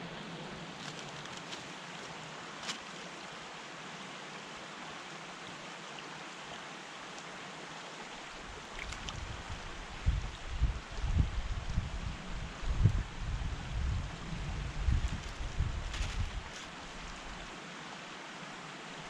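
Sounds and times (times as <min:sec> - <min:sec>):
brook running: 0:00.0 - 0:10.9
wind rumble on microphone: 0:08.4 - 0:17.5.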